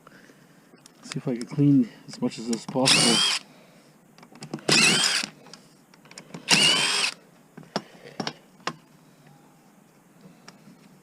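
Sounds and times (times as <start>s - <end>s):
power drill whirring: 2.9s - 3.4s, 4.7s - 5.3s, 6.5s - 7.2s.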